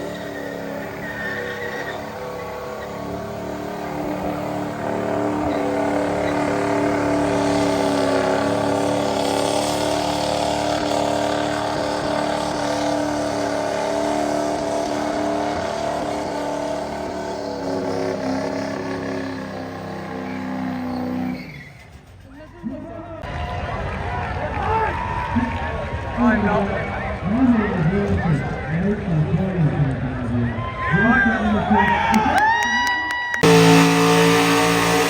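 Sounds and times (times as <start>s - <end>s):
truck engine at high revs: 0.0s - 23.2s, 33.4s - 35.0s.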